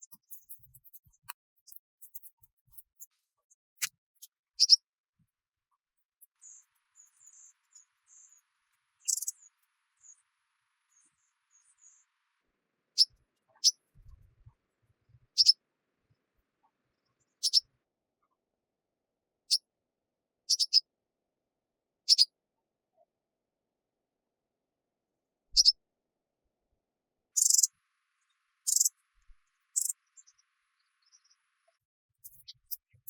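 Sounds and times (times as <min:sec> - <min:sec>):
bird chirping: 0:00.0 - 0:03.1, 0:03.8 - 0:04.8, 0:06.2 - 0:08.4, 0:09.0 - 0:10.2, 0:13.0 - 0:14.2, 0:15.3 - 0:15.6, 0:17.4 - 0:17.7, 0:20.5 - 0:20.8, 0:22.1 - 0:22.3, 0:25.6 - 0:25.8, 0:27.4 - 0:27.7, 0:28.7 - 0:29.0, 0:29.7 - 0:31.4, 0:32.2 - 0:33.0
faint high twitters: 0:00.0 - 0:03.1, 0:09.0 - 0:09.5, 0:27.4 - 0:27.7, 0:28.7 - 0:29.0, 0:29.8 - 0:30.4, 0:32.2 - 0:33.0.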